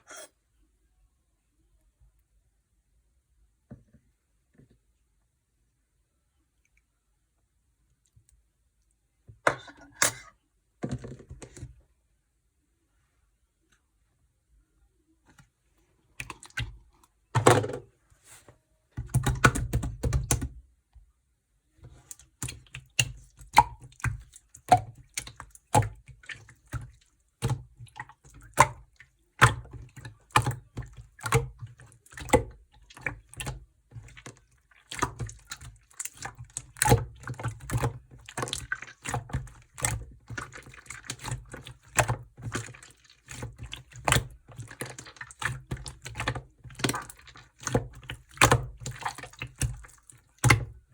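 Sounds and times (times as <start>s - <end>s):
slime squelching and clicking: 22.0s - 50.9s.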